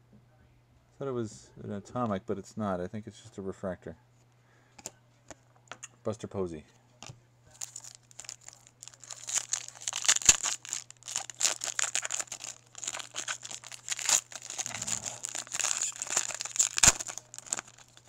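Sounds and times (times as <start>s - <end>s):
faint low hum: 0.0s - 18.0s
cards being handled: 7.0s - 18.0s
foil wrapper crinkling and tearing: 7.5s - 18.0s.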